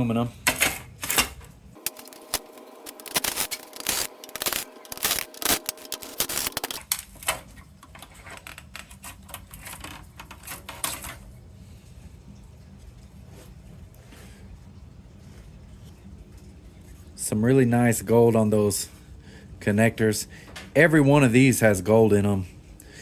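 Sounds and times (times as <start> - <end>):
metal and plastic parts clattering: 0.6 - 11.2.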